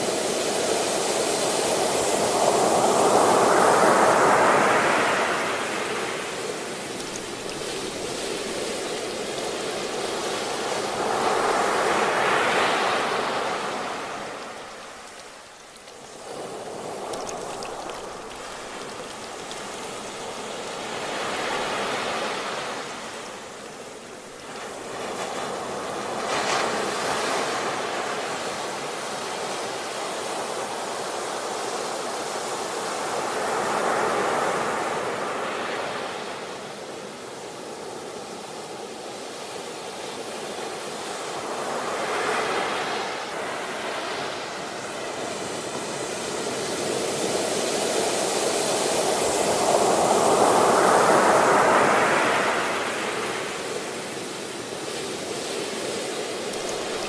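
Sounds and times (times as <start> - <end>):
ocean waves breaking: 1.7 - 27.0, 55.7 - 57.0.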